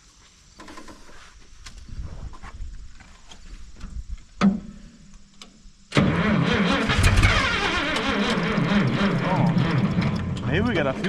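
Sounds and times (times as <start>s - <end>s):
tractor engine cranking: 5.9s - 11.0s.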